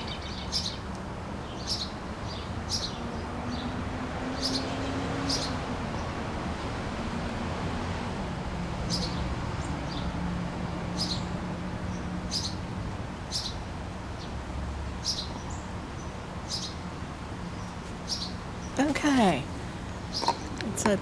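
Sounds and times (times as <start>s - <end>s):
bird chirping: 0.0s - 0.8s, 1.4s - 3.8s, 4.4s - 6.1s, 8.9s - 10.1s, 11.0s - 11.3s, 11.9s - 12.6s, 13.3s - 13.6s, 15.0s - 16.8s, 17.4s - 20.9s.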